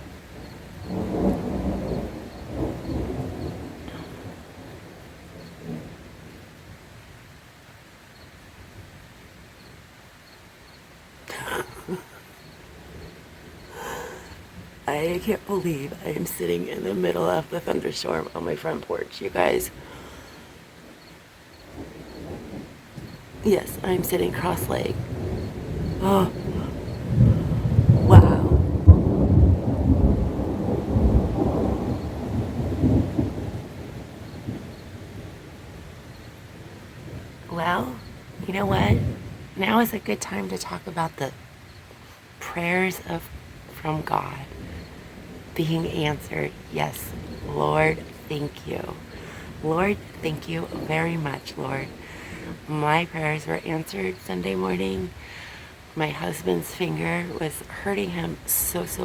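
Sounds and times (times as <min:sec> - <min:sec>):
thunder crash and rumble: 0:00.0 - 0:06.3, 0:21.6 - 0:39.8, 0:44.0 - 0:53.6
steady rain hiss: 0:00.0 - 0:59.0.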